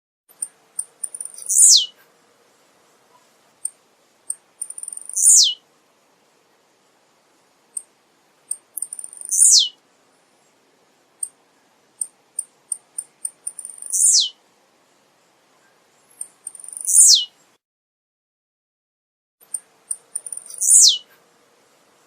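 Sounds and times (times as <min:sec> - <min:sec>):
high bird chips: 0:00.3 - 0:01.9, 0:04.3 - 0:05.6, 0:08.5 - 0:09.7, 0:12.0 - 0:14.3, 0:16.1 - 0:17.2, 0:19.4 - 0:21.1
bird singing high falling notes: 0:09.1 - 0:09.8, 0:13.6 - 0:14.4, 0:20.3 - 0:21.0.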